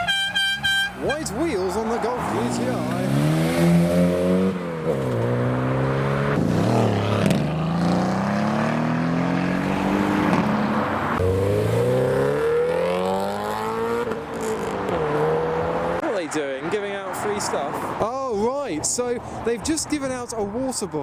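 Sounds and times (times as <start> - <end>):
car engine accelerating: 1.7 - 16.0.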